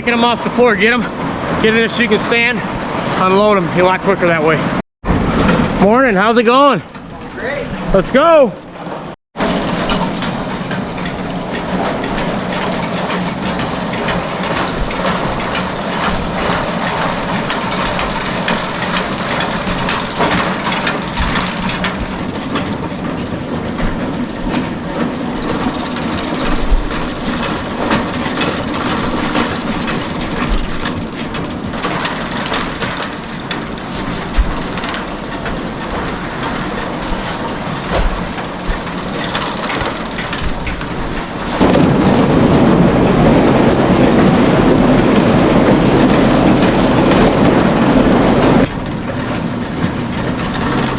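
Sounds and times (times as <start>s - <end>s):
chain conveyor clattering: 8.4s - 50.9s
bales knocking: 9.4s - 42.6s.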